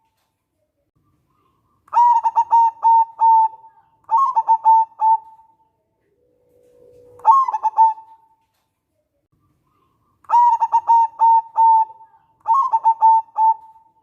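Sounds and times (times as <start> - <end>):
dove cooing: 1.4 - 5.5, 6.4 - 8.3, 9.8 - 14.0.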